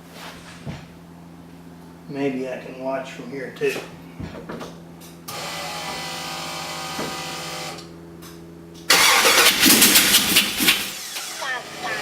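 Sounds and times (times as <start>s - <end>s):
engine starter cranking: 8.9s - 11.4s.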